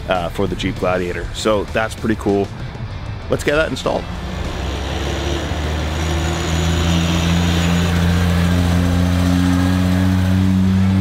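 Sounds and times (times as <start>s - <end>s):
vehicle engine revving up: 3.5s - 11.0s.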